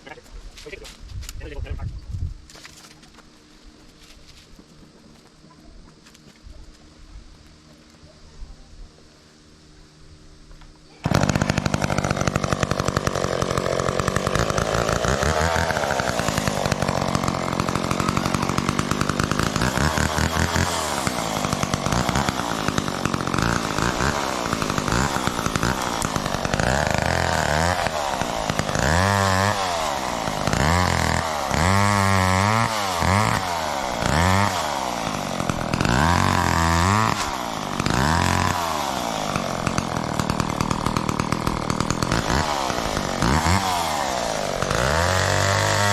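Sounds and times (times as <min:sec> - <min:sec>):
chainsaw cutting: 0:10.9 - 0:45.9.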